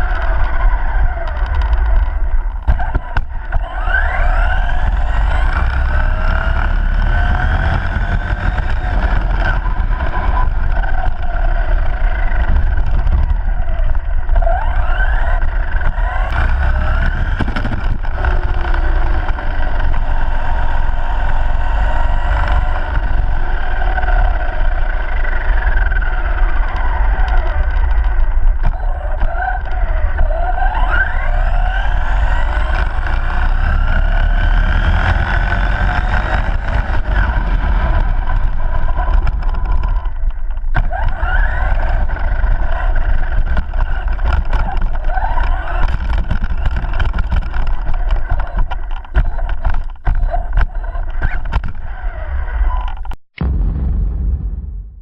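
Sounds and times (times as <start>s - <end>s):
electric motor whining: 0.0s - 53.1s
low rumble: 51.8s - 55.0s.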